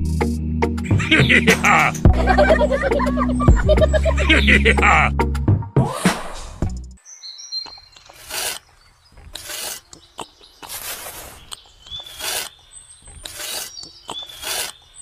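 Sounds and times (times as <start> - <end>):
trowel scraping mortar: 8.0 - 15.0.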